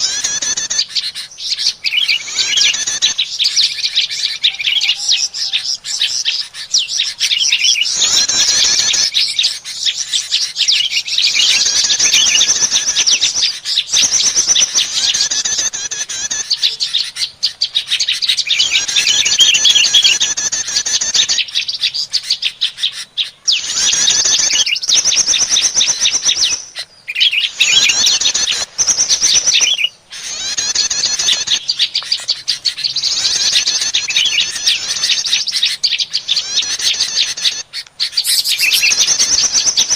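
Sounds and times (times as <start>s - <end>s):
bird chattering: 0.0s - 39.9s.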